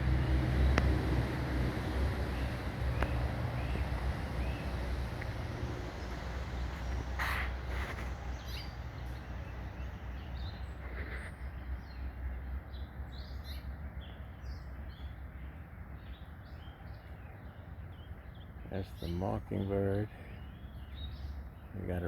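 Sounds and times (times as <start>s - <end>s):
steady low rumble: 0.0s - 10.5s
songbirds chirping: 0.0s - 22.0s.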